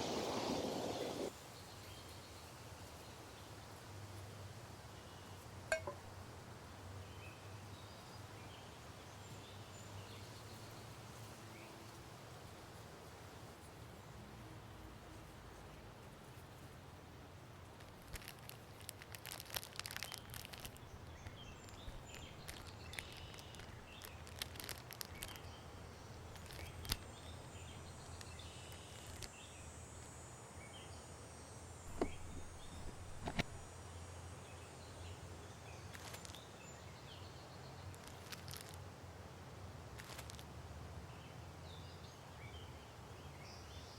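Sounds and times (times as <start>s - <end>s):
crunches and rustles: 17.8s - 25.5s, 31.9s - 33.7s, 38.0s - 38.8s, 40.0s - 40.4s
sharp clicks: 18.1s - 25.5s.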